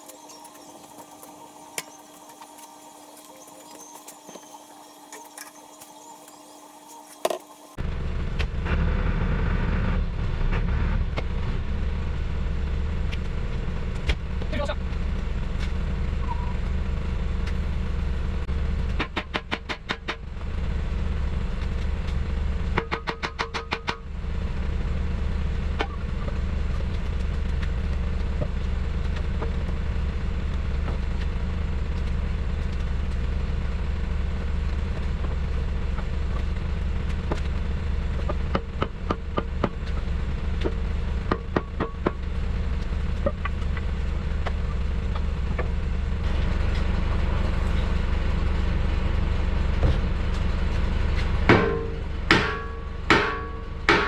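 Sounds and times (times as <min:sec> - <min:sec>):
low mechanical hum: 0:00.0 - 0:54.0
hammer ringing on steel: 0:51.5 - 0:54.0.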